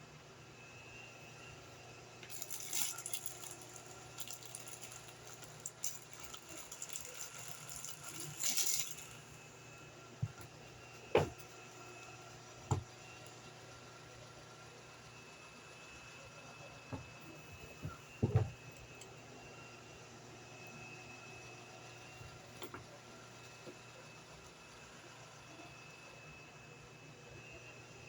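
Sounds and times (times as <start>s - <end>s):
crinkly rustling: 2.3s - 9.4s
objects set down knocking: 11.2s - 11.4s, 17.8s - 18.6s.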